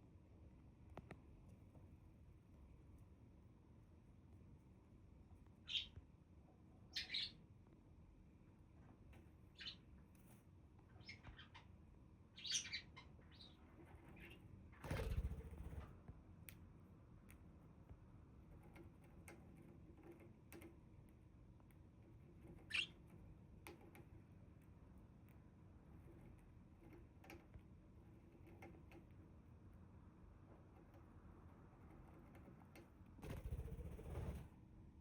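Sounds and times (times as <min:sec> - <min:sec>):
budgerigars chirping: 0:12.4 - 0:13.6.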